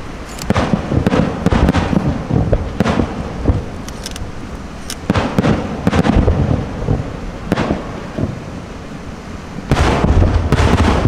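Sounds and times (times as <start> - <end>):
firework shells bursting: 0.2 - 8.4.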